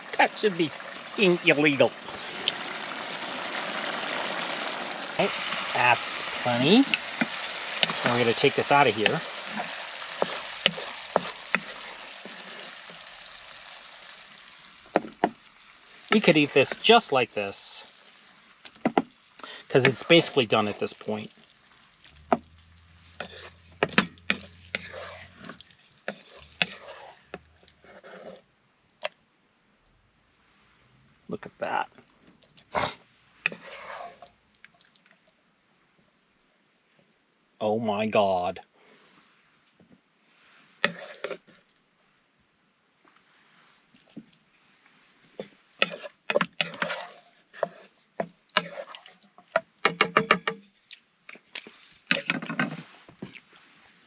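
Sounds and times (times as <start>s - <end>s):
utensil scraping a frying pan: 1.9s - 13.8s, 22.1s - 28.4s, 32.8s - 34.3s, 40.7s - 41.6s, 45.3s - 50.8s, 51.6s - 53.1s.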